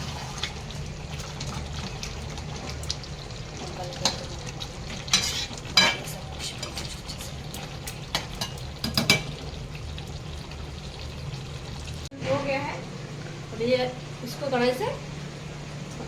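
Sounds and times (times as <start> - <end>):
curry sizzling in a pan: 0.0 - 16.0
spatula scraping a pan: 5.1 - 7.1.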